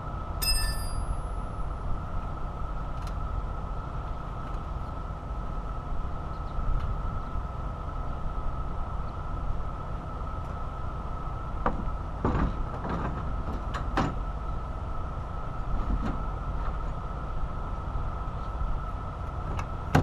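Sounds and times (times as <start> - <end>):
steady low rumble: 0.0 - 13.6
constant high hum: 0.0 - 20.0.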